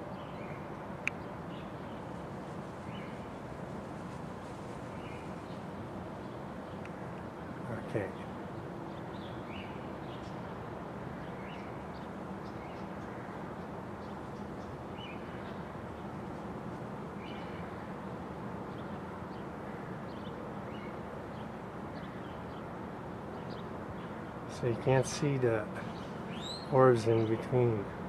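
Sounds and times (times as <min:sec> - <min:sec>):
outdoor background noise: 0:00.0 - 0:28.0
faint bird chirps: 0:25.8 - 0:27.6.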